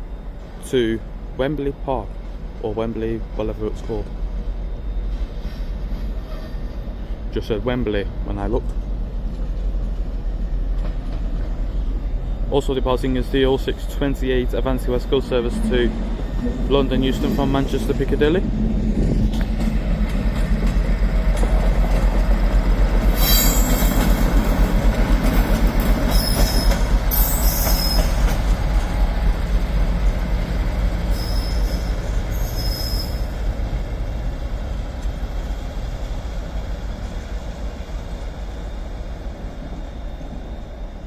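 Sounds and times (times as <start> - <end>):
train wheels rumbling on rail: 0.0 - 41.0
high-pitched wheel squeals: 23.0 - 24.2, 26.1 - 28.4, 31.1 - 33.4.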